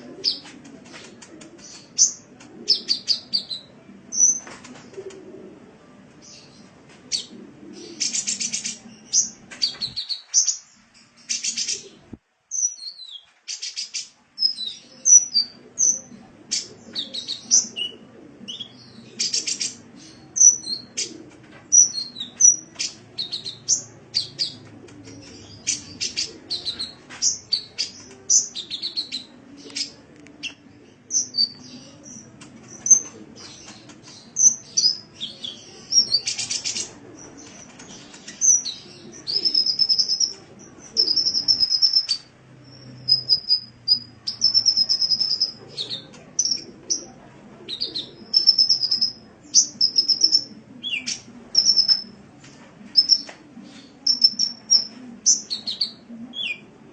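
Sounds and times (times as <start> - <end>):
sunbird chirps and trills: 38.3 - 45.6, 48.3 - 51.0, 51.6 - 52.1, 54.1 - 55.5.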